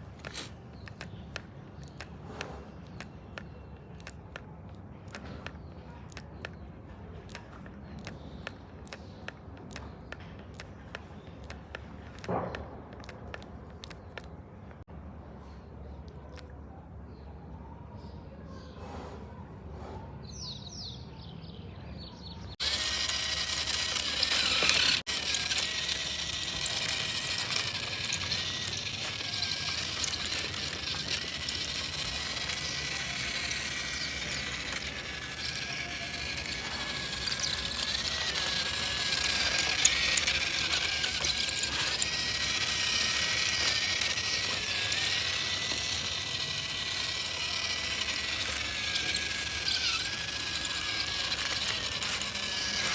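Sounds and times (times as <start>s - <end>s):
toy motor whining: 0.0s - 4.5s, 22.5s - 52.9s.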